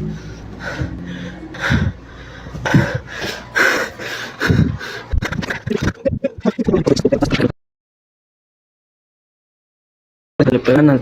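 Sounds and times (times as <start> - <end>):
person breathing heavily: 0.0 - 5.5.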